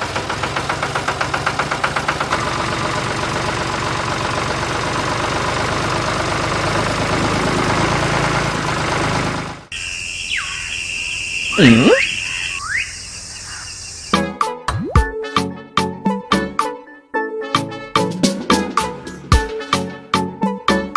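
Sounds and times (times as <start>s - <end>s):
high whistle-like gliding tone: 9.7s - 14.2s.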